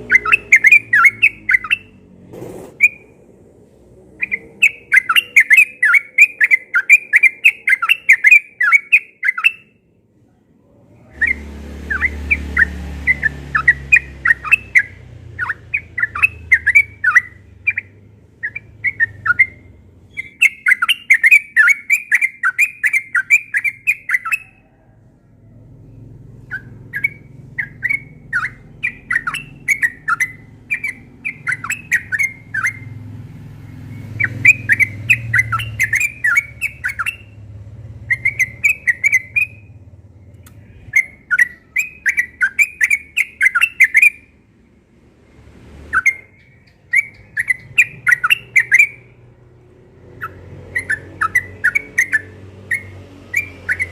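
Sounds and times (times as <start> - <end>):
bird chattering song: 0.0 - 2.0, 2.7 - 9.9, 11.1 - 24.8, 25.8 - 44.4, 45.9 - 49.4, 50.0 - 53.9
faint low rumble: 0.8 - 5.4, 24.4 - 41.8.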